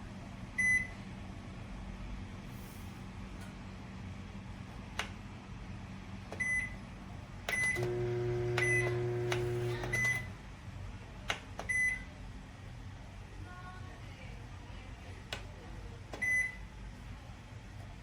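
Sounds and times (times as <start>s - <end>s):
microwave oven humming: 0.0s - 18.0s
microwave button clicks: 8.5s - 10.2s
microwave short high beeps: 8.6s - 10.3s.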